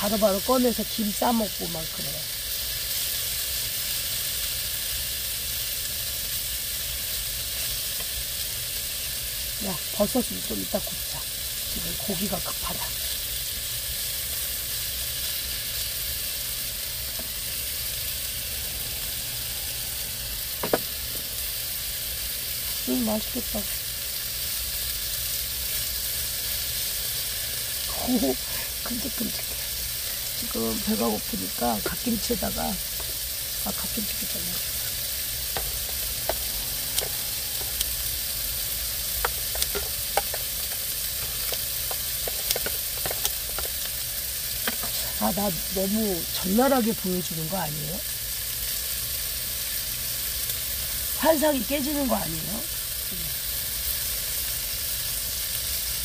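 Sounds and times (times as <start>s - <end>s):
meat sizzling in a pan: 0.0s - 56.0s
fat spattering and popping: 39.1s - 45.1s.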